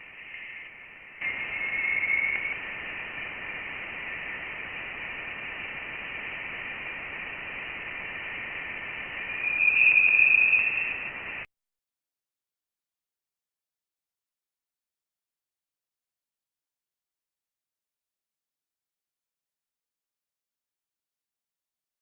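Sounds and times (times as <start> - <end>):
high steady hiss: 0.0 - 11.5
whistling tone: 1.2 - 2.6, 9.1 - 11.4.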